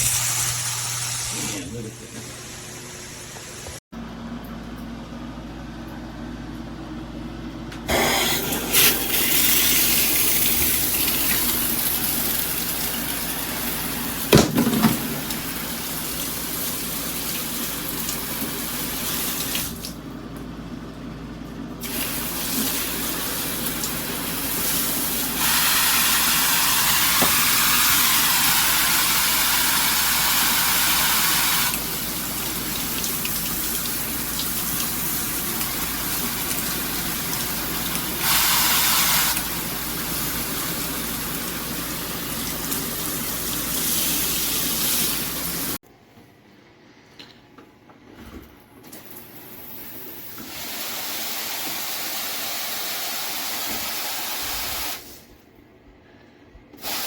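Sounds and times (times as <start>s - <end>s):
water spraying from shower head: 21.8s - 45.8s.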